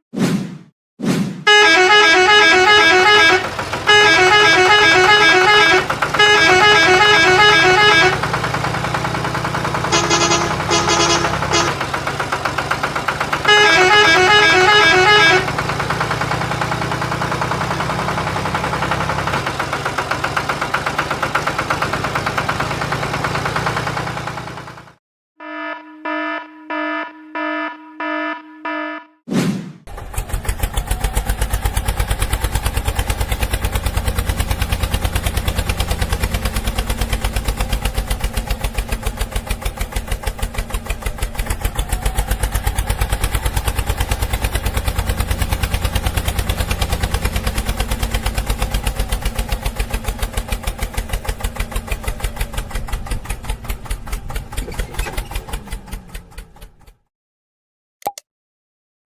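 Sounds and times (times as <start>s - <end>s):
truck horn honking: 1.5s - 17.2s, 25.4s - 29.2s, 33.8s - 36.4s
heavy vehicle engine rumbling: 1.5s - 25.0s, 29.9s - 57.0s
short beeps: 25.4s - 29.2s.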